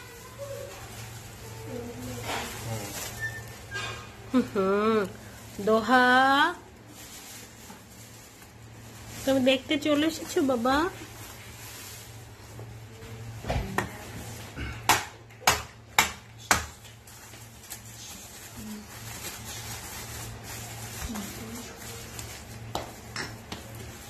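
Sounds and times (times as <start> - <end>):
charcoal being knocked and broken: 13.4 - 17.0, 22.6 - 24.0.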